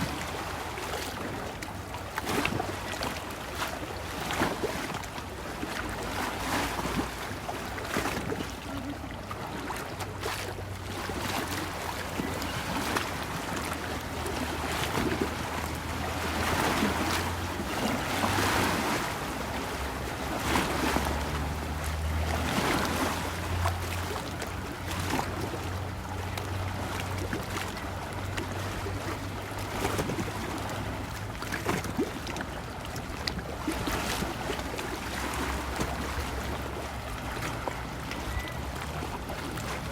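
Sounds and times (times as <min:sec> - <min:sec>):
water lapping and splashing: 0:00.0 - 0:39.9
wind: 0:00.0 - 0:39.9
low motor hum: 0:08.2 - 0:31.4.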